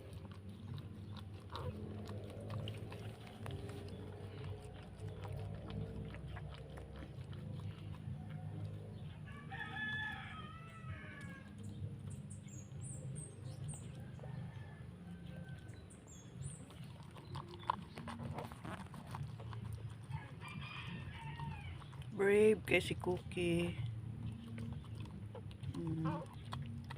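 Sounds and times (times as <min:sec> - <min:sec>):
steady low hum: 0:00.0 - 0:14.3
rooster crowing: 0:09.3 - 0:11.5, 0:14.0 - 0:15.8, 0:20.1 - 0:21.8.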